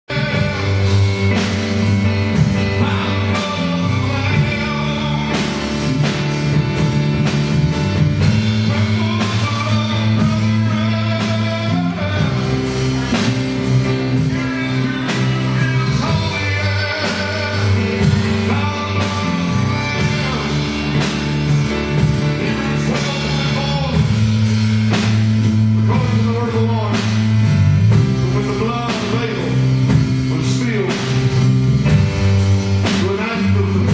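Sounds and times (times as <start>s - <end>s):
gospel band playing: 0.0s - 33.9s
people singing: 8.7s - 21.6s, 22.4s - 24.1s.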